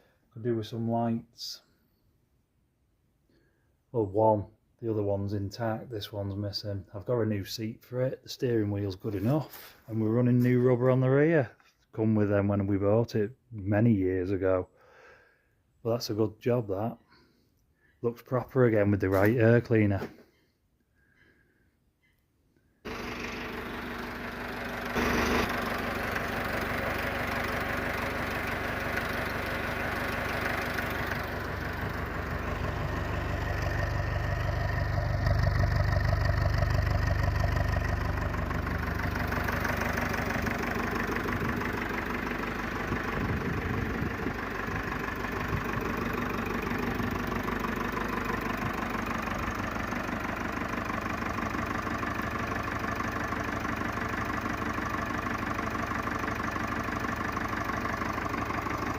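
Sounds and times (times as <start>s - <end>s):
tractor engine idling: 22.8s - 58.9s.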